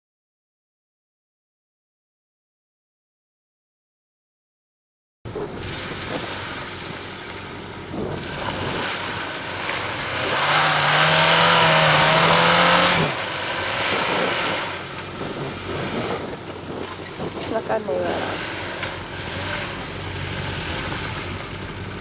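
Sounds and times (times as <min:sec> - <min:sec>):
off-road vehicle engine revving: 0:05.3 - 0:22.0.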